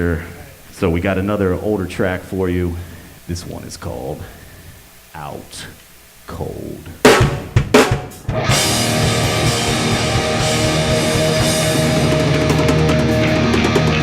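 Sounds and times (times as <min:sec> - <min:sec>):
drum hits: 0:07.0 - 0:14.0
punk band playing live: 0:07.0 - 0:14.0.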